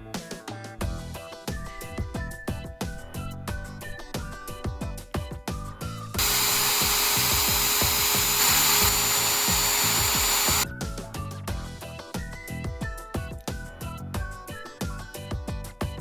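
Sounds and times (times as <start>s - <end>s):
rotary tool whining: 6.2s - 10.6s.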